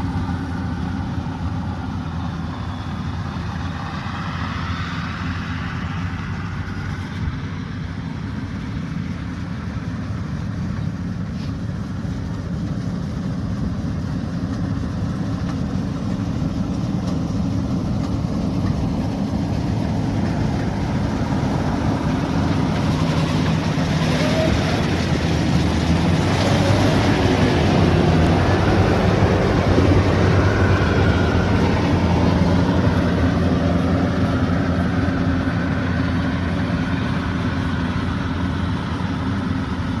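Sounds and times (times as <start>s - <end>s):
harvester diesel engine running: 0.0s - 40.0s
high-pitched machinery noise: 19.6s - 33.5s.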